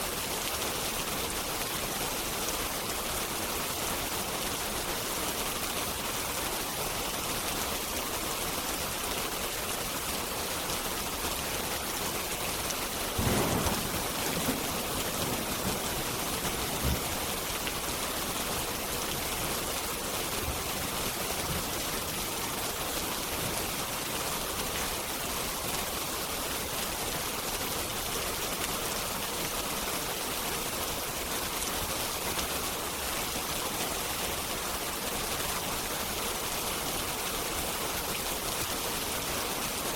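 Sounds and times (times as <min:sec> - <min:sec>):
rain hiss: 0:00.0 - 0:39.9
wood fire crackling: 0:13.0 - 0:19.8.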